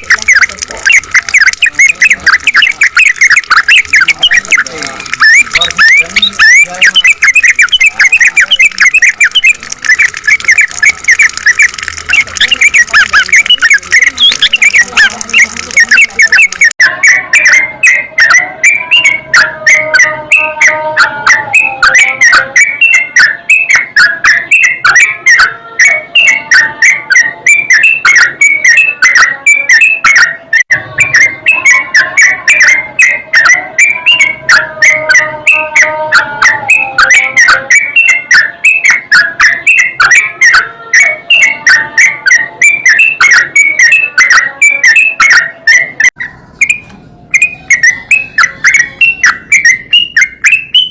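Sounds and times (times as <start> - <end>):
dense crackling clicks: 0.0 - 16.8
bird song whistled phrases: 0.0 - 50.9.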